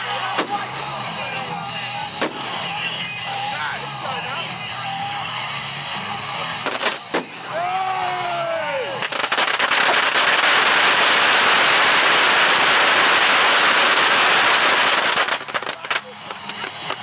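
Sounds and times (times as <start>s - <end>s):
fireworks crackling: 0.0s - 3.0s, 6.6s - 7.6s, 9.0s - 17.0s.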